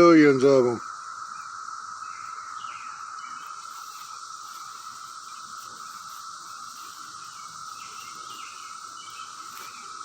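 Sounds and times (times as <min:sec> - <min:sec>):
cicadas droning: 0:00.0 - 0:10.0.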